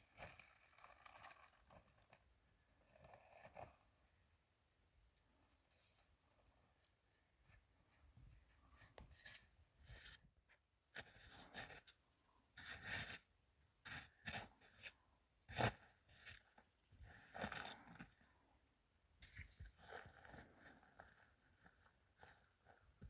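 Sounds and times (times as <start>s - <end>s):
rustling and scraping handling noise: 5.0s - 13.3s, 19.2s - 23.0s.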